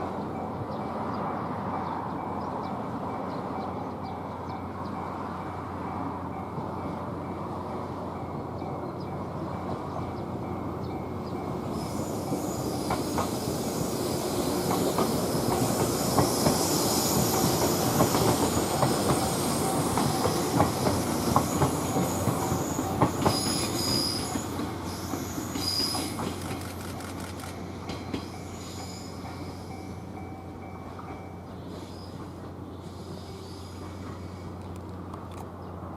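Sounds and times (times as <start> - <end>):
electric train passing: 0.0 - 35.9
high wheel squeals: 11.6 - 26.9, 28.2 - 30.5.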